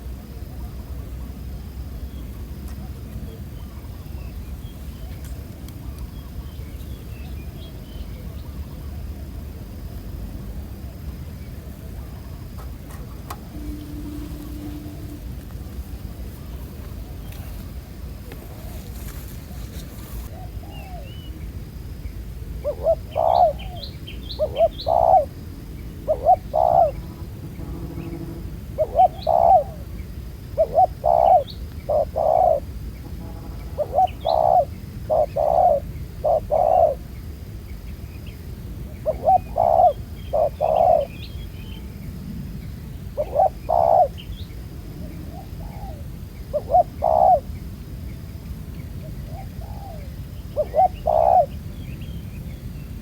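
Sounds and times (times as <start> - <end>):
dove cooing: 10.8 - 21.2, 22.5 - 32.7, 33.6 - 37.1, 38.8 - 41.2, 43.1 - 44.2, 45.0 - 47.6, 49.0 - 51.6
small birds chirping: 22.7 - 47.6, 48.7 - 53.0.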